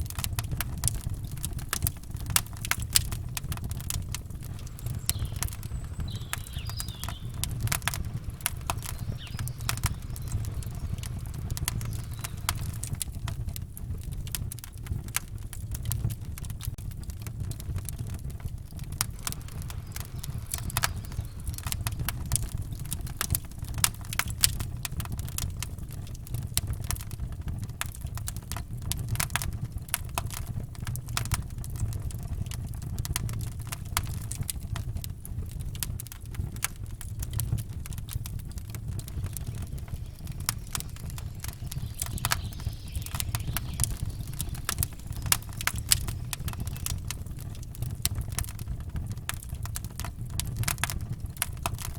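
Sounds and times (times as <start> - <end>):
steady low rumble: 0.0 - 14.6, 17.4 - 25.3, 37.8 - 49.4
campfire crackling: 0.0 - 51.9
fire pops and snaps: 0.0 - 51.9.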